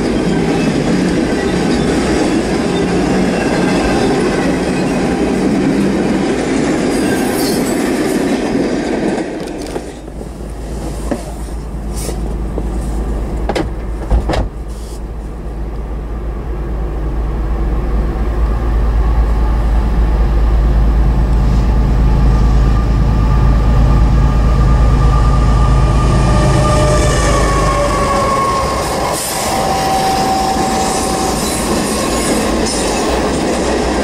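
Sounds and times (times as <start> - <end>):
locomotive engine rumble: 0.0 - 34.0.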